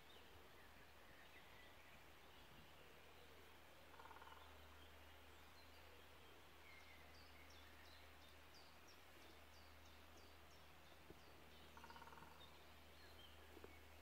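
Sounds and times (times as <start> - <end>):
rapid bird chatter: 11.1 - 12.6.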